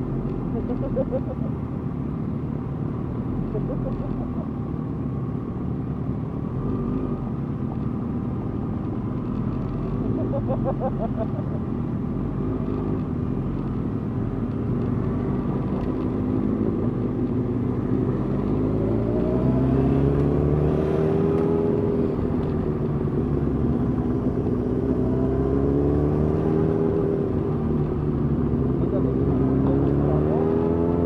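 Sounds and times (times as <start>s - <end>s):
motorcycle engines revving: 0.0s - 1.7s, 3.2s - 4.6s, 9.5s - 13.0s.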